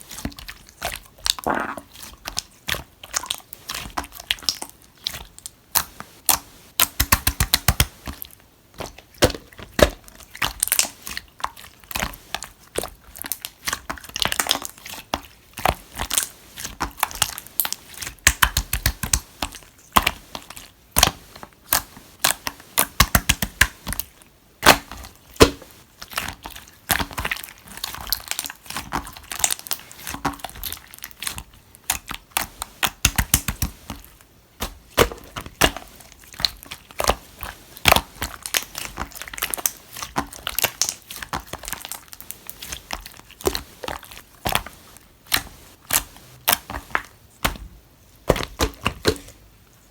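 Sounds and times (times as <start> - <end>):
slime clicking and popping: 1.3 - 1.9, 26.9 - 33.7, 37.8 - 42.2.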